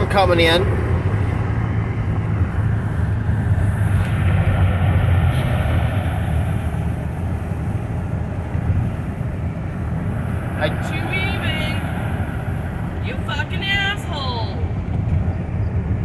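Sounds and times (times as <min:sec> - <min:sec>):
car cabin road rumble: 0:00.0 - 0:16.0.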